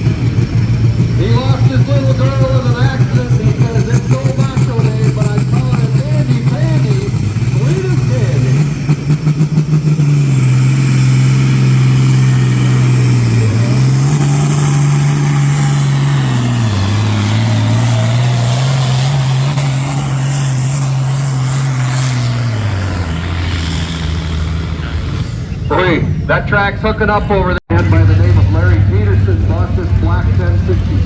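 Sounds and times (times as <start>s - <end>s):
high whine: 0.0s - 31.0s
tractor engine at full throttle: 0.0s - 31.0s.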